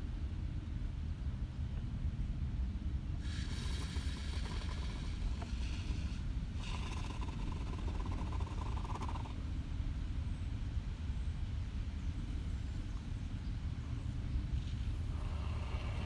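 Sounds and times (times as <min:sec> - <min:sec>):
steady low rumble: 0:00.0 - 0:16.0
foam hissing from spray can: 0:03.2 - 0:07.2.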